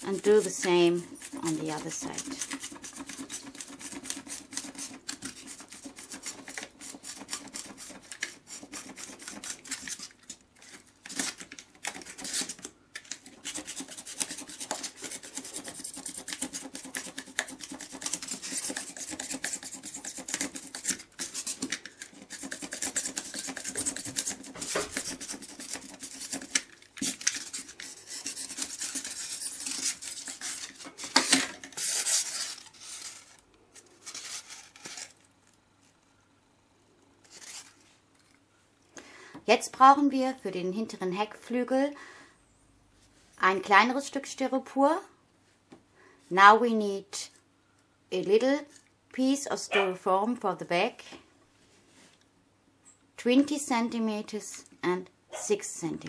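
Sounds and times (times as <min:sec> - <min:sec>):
knife rasping styrofoam: 0:00.0 - 0:35.2, 0:37.2 - 0:37.7.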